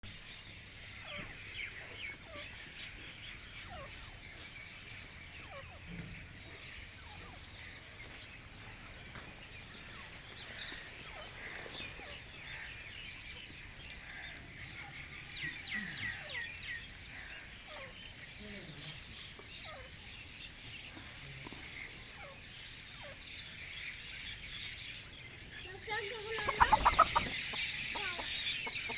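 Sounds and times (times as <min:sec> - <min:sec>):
small birds chirping: 0:00.0 - 0:28.9
domestic fowl clucking: 0:26.0 - 0:28.9.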